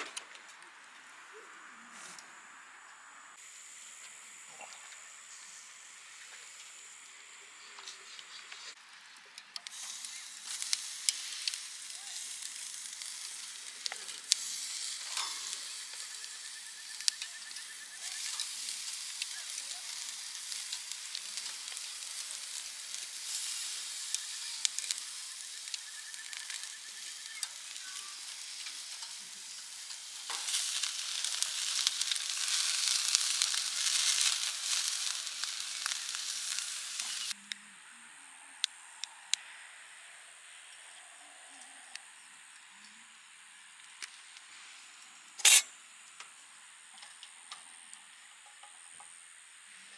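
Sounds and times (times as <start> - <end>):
meat sizzling on a grill: 3.4 - 37.4, 45.4 - 45.7
sharp pops and spits: 9.6 - 37.4, 45.4 - 45.7.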